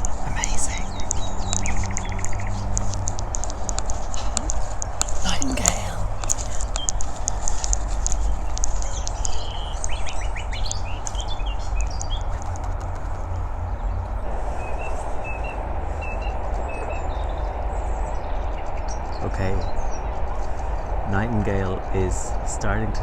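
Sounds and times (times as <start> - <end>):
nightingale singing: 0.0 - 12.3.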